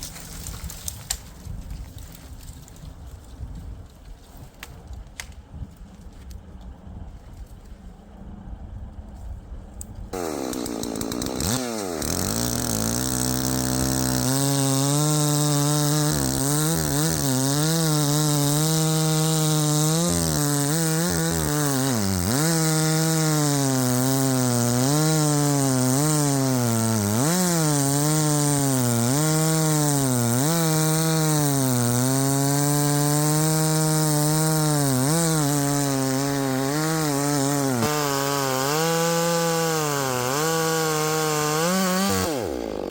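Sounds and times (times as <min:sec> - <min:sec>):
chainsaw cutting wood: 0:10.1 - 0:42.9.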